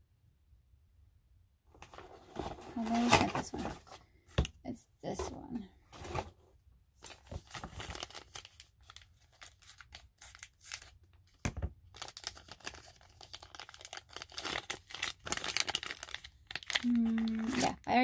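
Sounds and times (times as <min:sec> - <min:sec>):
packaging crinkling and rustling: 0:01.8 - 0:04.1, 0:07.0 - 0:17.9.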